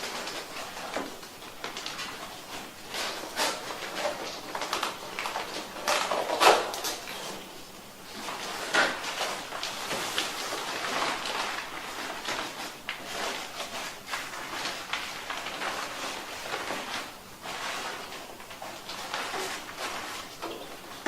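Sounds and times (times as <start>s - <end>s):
plastic clicking and rustling: 0.0s - 7.4s.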